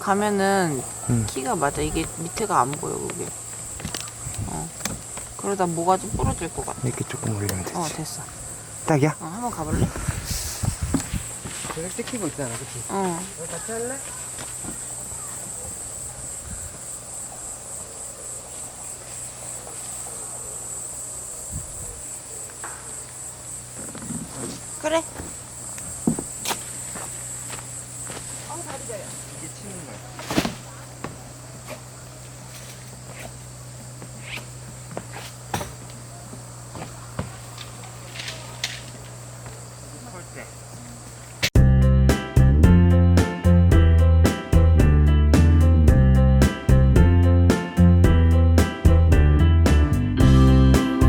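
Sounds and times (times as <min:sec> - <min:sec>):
crickets chirping: 0:00.0 - 0:41.6.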